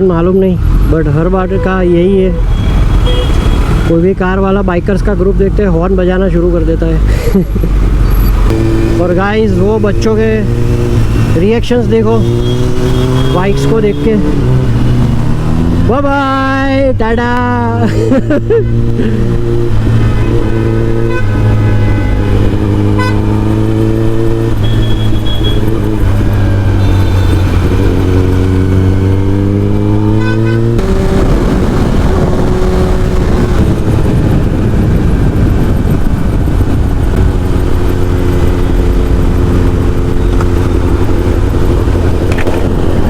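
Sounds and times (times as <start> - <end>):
motorcycle engine riding: 0.0 - 43.0
wind noise: 17.8 - 43.0.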